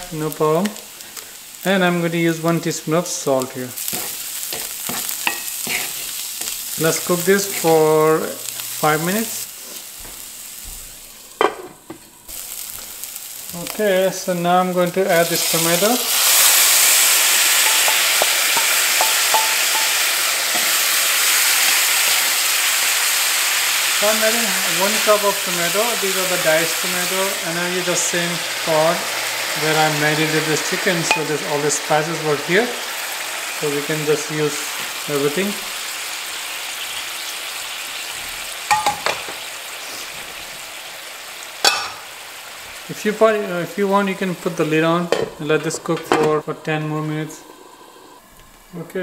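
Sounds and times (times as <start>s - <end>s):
loud steady sizzle in skillet: 0.0s - 49.0s
wooden spoon stirring: 3.8s - 9.8s, 17.6s - 21.1s.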